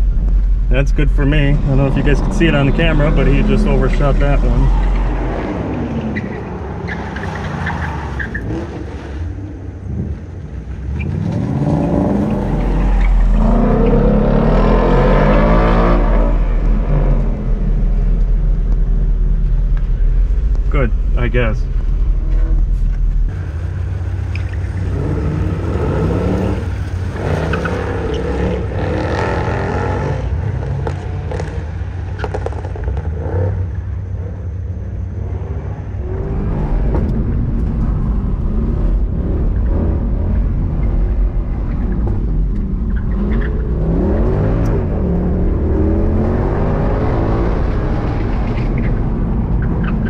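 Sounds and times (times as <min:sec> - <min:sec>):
car engine revving hard: 0:01.1 - 0:06.0, 0:11.4 - 0:17.4, 0:24.8 - 0:31.6.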